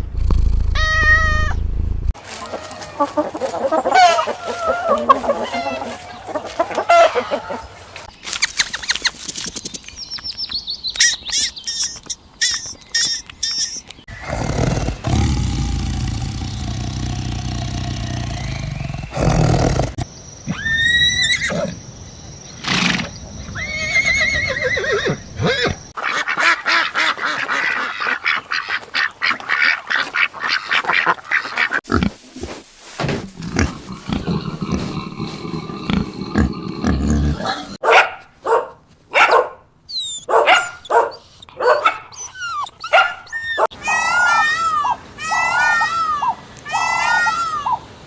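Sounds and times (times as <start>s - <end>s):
rapid repeated animal sounds: 11.0s - 21.8s, 22.6s - 37.8s
rising animal calls: 11.0s - 21.8s
low animal rumble: 14.1s - 20.1s, 33.2s - 37.8s.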